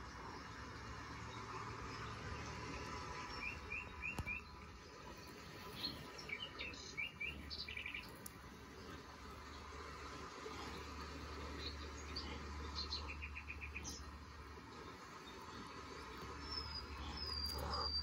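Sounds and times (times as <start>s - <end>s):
small birds chirping: 0.0s - 18.0s
bird trill: 5.6s - 8.3s, 15.2s - 18.0s.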